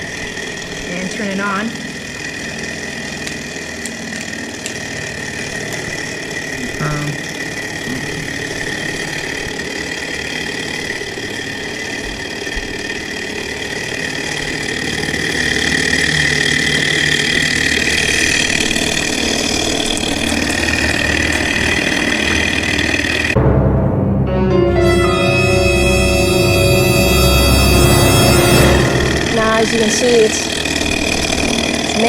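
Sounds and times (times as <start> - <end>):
small engine running: 0.0 - 23.4, 28.5 - 32.0
high-pitched whine: 18.0 - 32.0.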